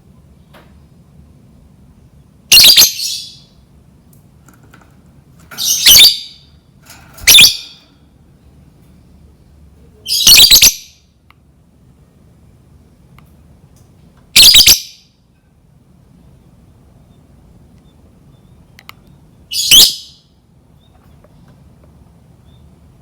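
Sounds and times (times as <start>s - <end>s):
lovebird squawking: 2.5s - 3.5s, 5.6s - 6.5s, 7.3s - 7.8s, 10.1s - 10.9s, 14.4s - 15.0s, 19.5s - 20.2s.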